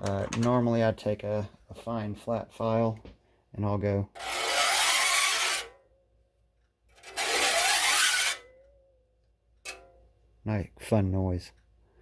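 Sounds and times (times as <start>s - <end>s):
file rasping on saw teeth: 4.2s - 5.7s, 7.0s - 8.4s.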